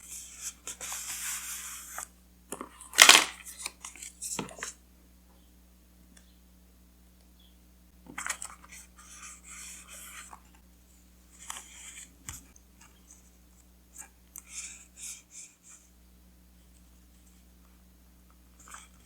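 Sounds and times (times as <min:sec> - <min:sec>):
paper crinkling and rustling: 0:03.0 - 0:04.1.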